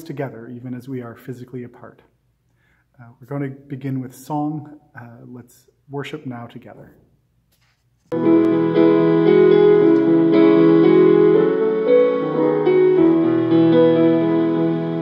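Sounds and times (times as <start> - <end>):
keyboard playing sustained chords: 8.2 - 15.0.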